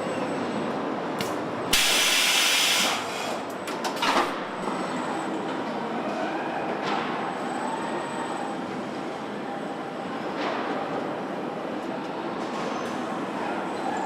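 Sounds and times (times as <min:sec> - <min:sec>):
loud hiss: 0:01.7 - 0:03.4.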